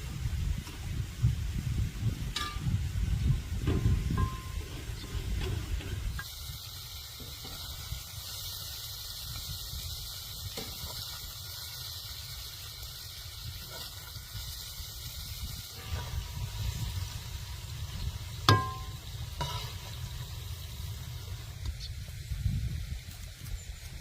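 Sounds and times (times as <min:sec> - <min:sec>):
pulp sizzling in a pot: 0:00.4 - 0:22.7.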